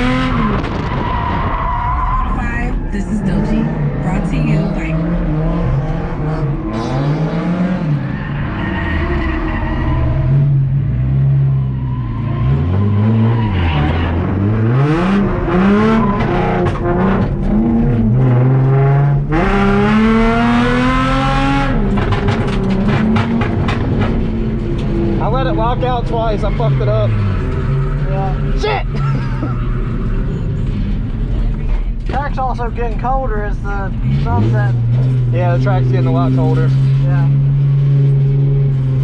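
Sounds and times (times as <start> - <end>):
tire squeal: 0.0 - 4.1, 7.8 - 10.6, 11.4 - 14.9, 15.5 - 17.0, 25.3 - 30.7
car engine revving: 0.0 - 39.0.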